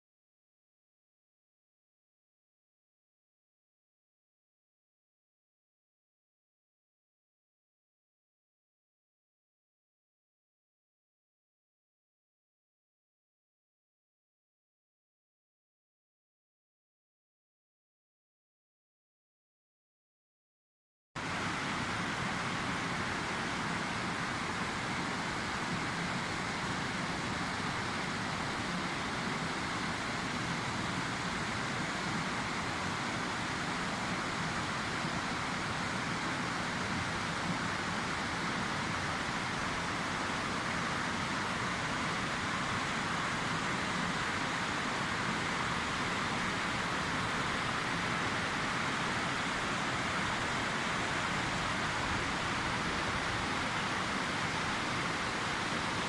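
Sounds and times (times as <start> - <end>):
waterfall rushing: 21.2 - 56.0.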